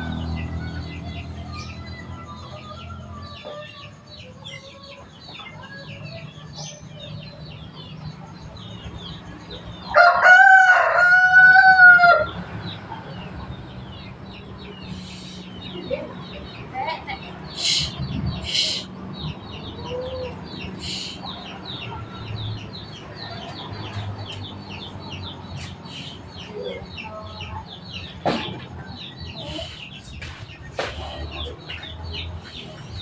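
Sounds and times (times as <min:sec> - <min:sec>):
low engine hum: 0:00.0 - 0:10.0, 0:10.8 - 0:33.0
small birds chirping: 0:00.0 - 0:10.1, 0:12.1 - 0:33.0
rooster crowing: 0:09.8 - 0:12.4.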